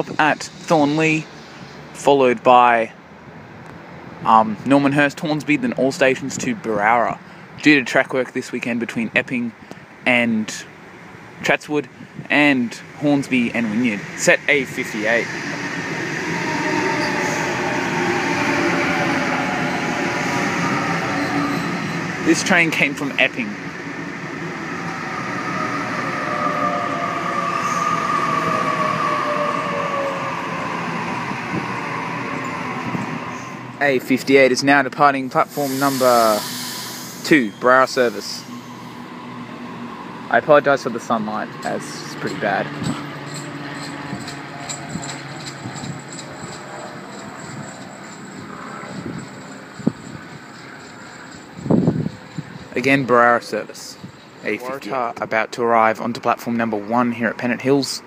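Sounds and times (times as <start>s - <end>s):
train rumble: 12.2s - 55.9s
electric train whine: 12.8s - 34.6s, 35.3s - 55.1s.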